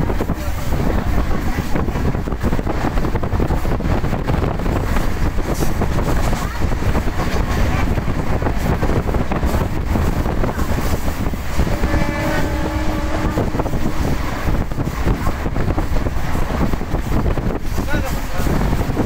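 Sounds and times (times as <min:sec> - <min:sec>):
train running at speed: 0:00.0 - 0:19.0
wind buffeting microphone: 0:00.0 - 0:19.0.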